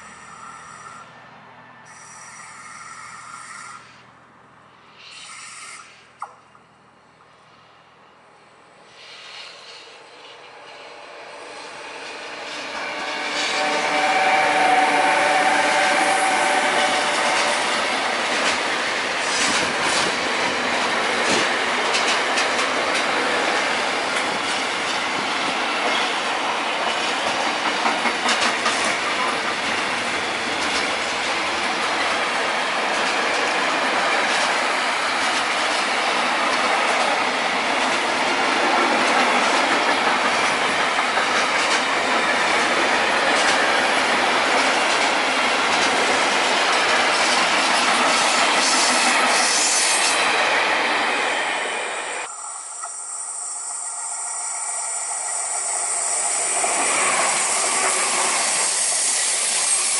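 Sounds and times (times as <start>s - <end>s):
steel wheels rumbling on rail: 8.9s - 59.9s
wheels clicking over rail joints: 17.2s - 26.1s, 26.8s - 32.2s, 32.8s - 50.6s.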